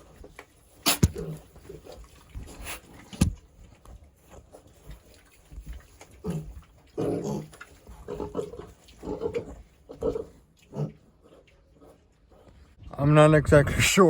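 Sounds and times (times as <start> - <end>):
young pigs grunting: 0.8 - 3.3, 6.1 - 12.6.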